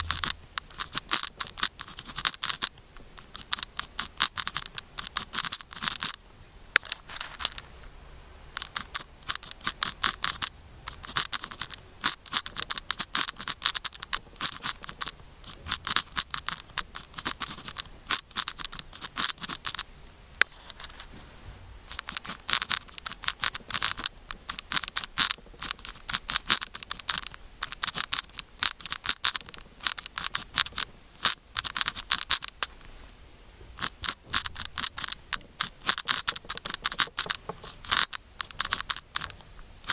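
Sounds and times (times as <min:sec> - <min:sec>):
pen scratching on paper: 0:00.0 - 0:02.6, 0:08.6 - 0:19.8, 0:20.4 - 0:21.1.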